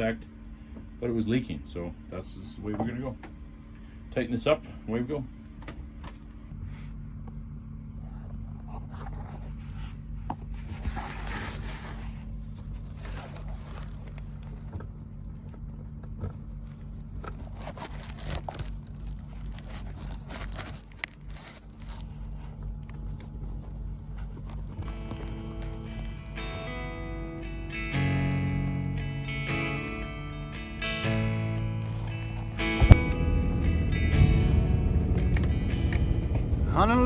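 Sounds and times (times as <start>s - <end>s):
steady low hum: 0.0s - 37.0s
threaded fitting scraping and clicking: 16.0s - 26.8s.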